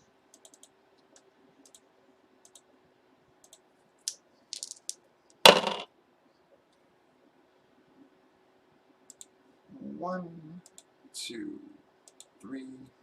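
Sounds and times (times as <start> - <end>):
keyboard and mouse clicks: 0.3 - 1.8, 2.4 - 2.7.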